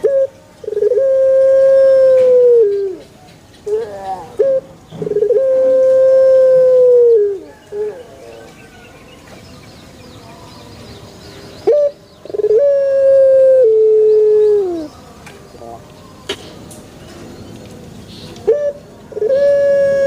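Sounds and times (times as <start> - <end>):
dove cooing: 0.0 - 8.8, 11.6 - 14.9, 18.4 - 20.0.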